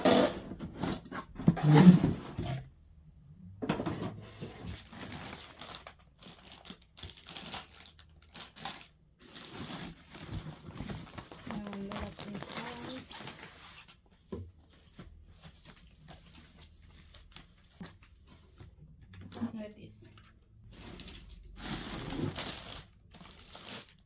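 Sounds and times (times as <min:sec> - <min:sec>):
plastic wrap and cardboard crinkling: 0:04.2 - 0:19.6, 0:20.5 - 0:24.0.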